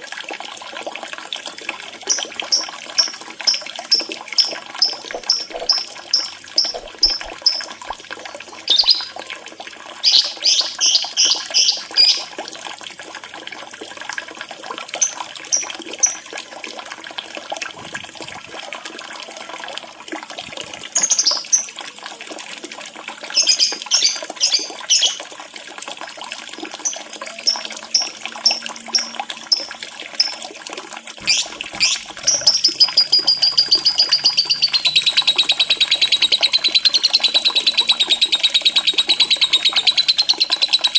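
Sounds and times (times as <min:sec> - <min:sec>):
trickling water: 0:00.0 - 0:40.9
lovebird chirping: 0:02.1 - 0:07.8, 0:08.7 - 0:09.1, 0:10.0 - 0:12.3, 0:23.4 - 0:25.2, 0:26.9 - 0:30.4, 0:31.2 - 0:40.9.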